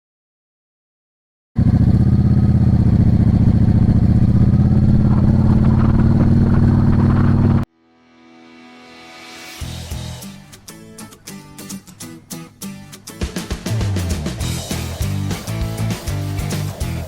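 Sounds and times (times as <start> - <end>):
motorcycle engine running: 1.6 - 7.7, 14.3 - 17.0.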